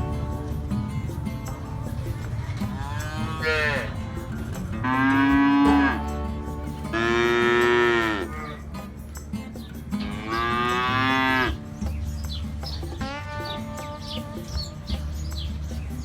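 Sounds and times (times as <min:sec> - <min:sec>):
cows mooing: 0:00.0 - 0:08.9, 0:10.0 - 0:11.7, 0:13.0 - 0:15.3.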